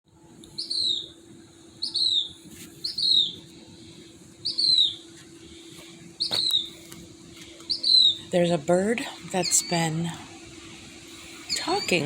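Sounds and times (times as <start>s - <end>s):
steady low hum: 0.1s - 12.0s
bird calling: 0.6s - 1.2s, 1.8s - 3.5s, 4.4s - 5.2s, 6.2s - 6.8s, 7.6s - 8.4s, 9.4s - 10.0s, 11.3s - 12.0s.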